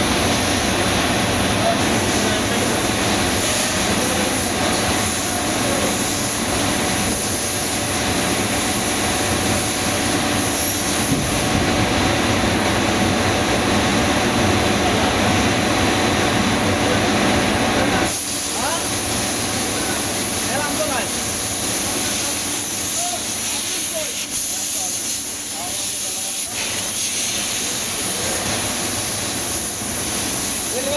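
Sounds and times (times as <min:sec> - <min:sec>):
machine rushing hum: 0:08.0 - 0:18.0.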